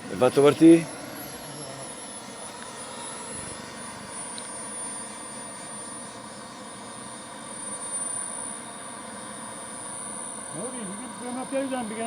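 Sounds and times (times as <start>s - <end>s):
model jet turbines running: 0.0s - 12.0s.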